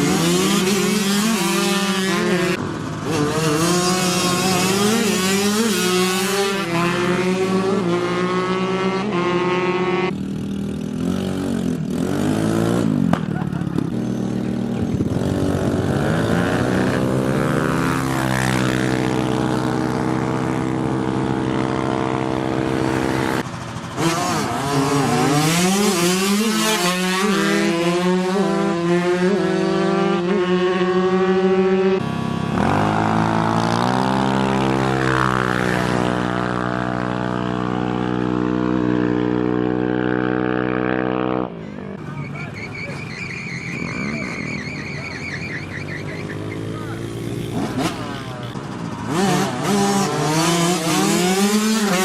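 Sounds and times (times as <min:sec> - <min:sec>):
motorcycle engines revving: 0:00.0 - 0:52.0.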